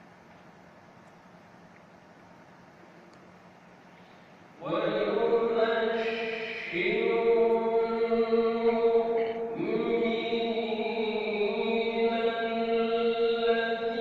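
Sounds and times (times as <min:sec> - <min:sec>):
person reciting melodically: 0:04.6 - 0:14.0.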